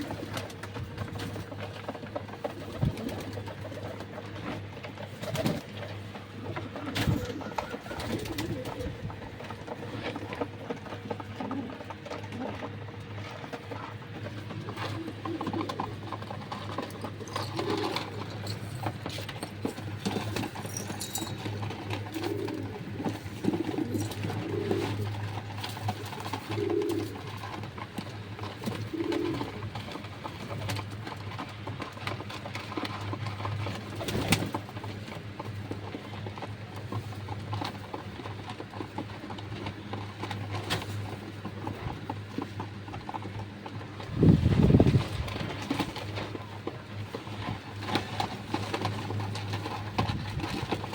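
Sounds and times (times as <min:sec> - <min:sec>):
pigeons cooing: 0:00.0 - 0:50.9.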